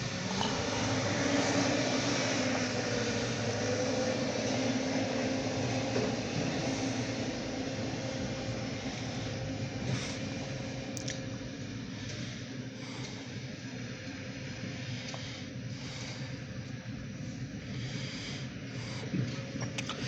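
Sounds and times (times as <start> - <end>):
diesel locomotive running: 0.0 - 20.0.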